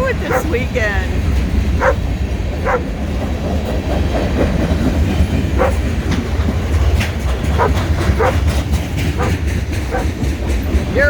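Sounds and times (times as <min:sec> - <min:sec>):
clickety-clack of train cars: 0:00.0 - 0:11.0
freight train rumbling past: 0:00.0 - 0:11.0
dog barking: 0:00.2 - 0:00.6, 0:01.8 - 0:02.0, 0:02.6 - 0:02.9, 0:05.6 - 0:05.8, 0:07.6 - 0:08.4, 0:09.2 - 0:10.2.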